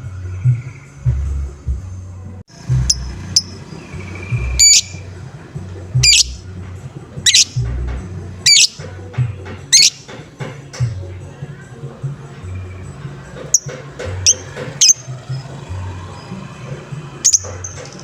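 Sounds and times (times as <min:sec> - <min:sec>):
pulsing low beat: 0:00.0 - 0:10.0
lovebird harsh calls: 0:02.5 - 0:05.2, 0:05.8 - 0:06.5, 0:07.2 - 0:08.9, 0:09.7 - 0:10.2, 0:13.4 - 0:15.6, 0:17.2 - 0:17.9.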